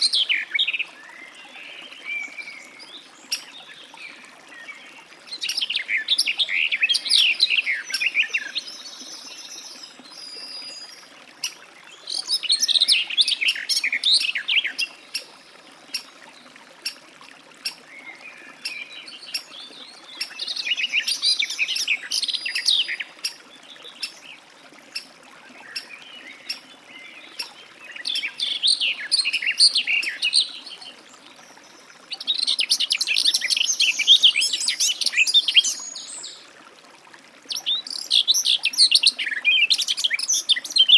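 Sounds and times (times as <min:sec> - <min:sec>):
warbler singing: 0:25.7 - 0:36.4.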